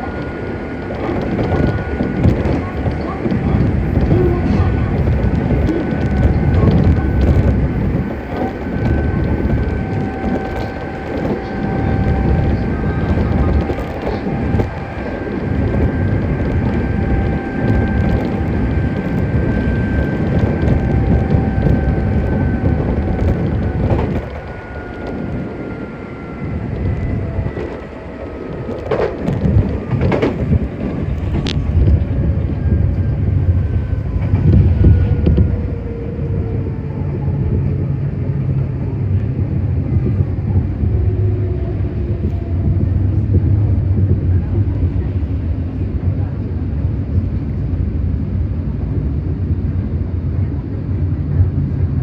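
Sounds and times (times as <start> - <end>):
wheels clicking over rail joints: 0.0 - 35.6
electric train motor whine: 0.0 - 37.0.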